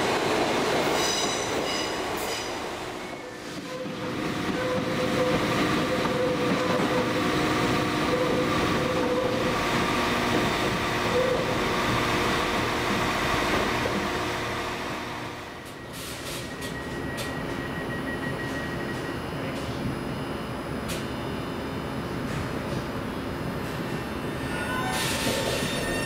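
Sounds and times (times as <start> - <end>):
train running rumble: 0.0 - 17.6
train whining tones: 0.8 - 19.3, 24.0 - 26.0.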